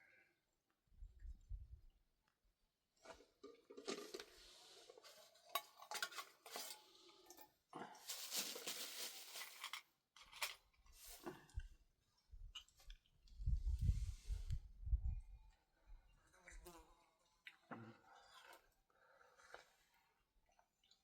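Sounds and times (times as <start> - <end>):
metal kitchenware scraping and clinking: 3.6 - 7.4.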